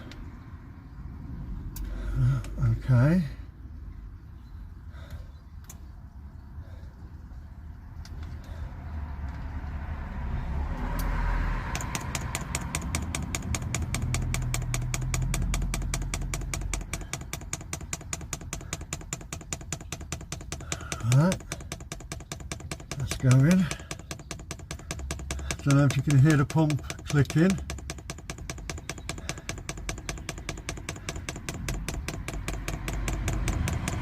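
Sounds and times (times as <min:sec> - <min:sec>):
fuel pump clicking rapidly: 0:11.6 - 0:34.0.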